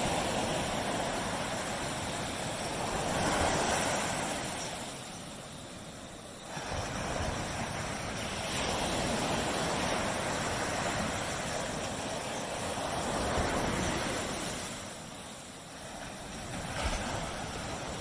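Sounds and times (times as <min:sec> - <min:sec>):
wave breaking on beach: 0:00.0 - 0:05.1, 0:06.4 - 0:18.0.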